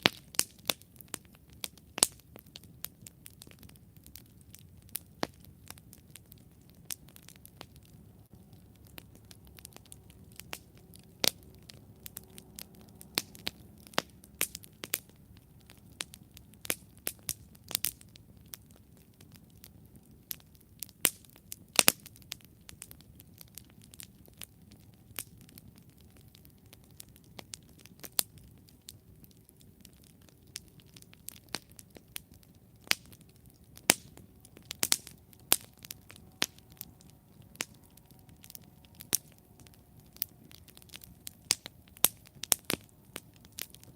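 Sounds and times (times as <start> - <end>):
campfire crackling and popping: 0.0 - 43.9
low rumble of flames: 0.0 - 43.9.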